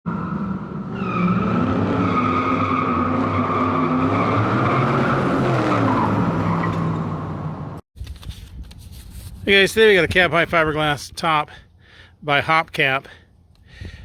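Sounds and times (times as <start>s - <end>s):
high-pitched tire squeal: 0.1s - 7.8s.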